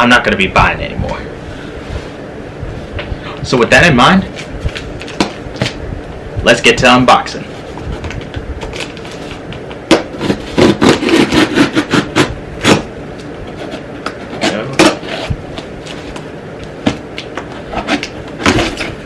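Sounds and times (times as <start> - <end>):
cardboard and tape tearing: 8.6 - 12.8, 17.6 - 19.0
blade cutting cardboard: 9.9 - 12.9, 13.5 - 16.0, 16.8 - 19.0.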